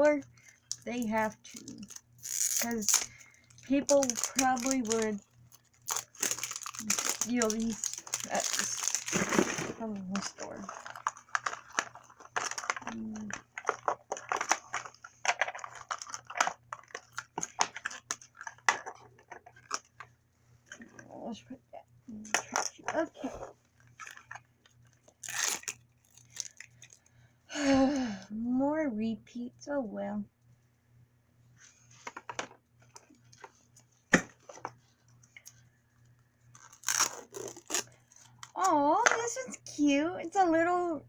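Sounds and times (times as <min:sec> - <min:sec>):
plastic packaging crinkling torn open: 0:01.4 - 0:20.0, 0:25.0 - 0:27.0, 0:36.5 - 0:38.6.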